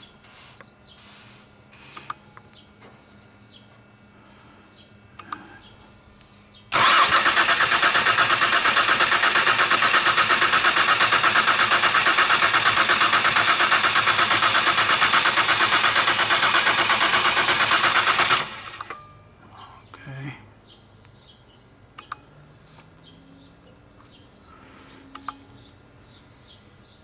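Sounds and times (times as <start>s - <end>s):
car engine cranking: 6.7s - 19.0s.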